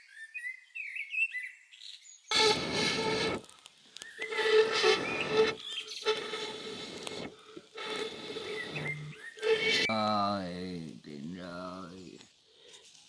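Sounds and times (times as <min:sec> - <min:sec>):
machine hissing and humming: 0:02.3 - 0:03.5, 0:04.2 - 0:09.9
birds chirping: 0:04.0 - 0:10.0.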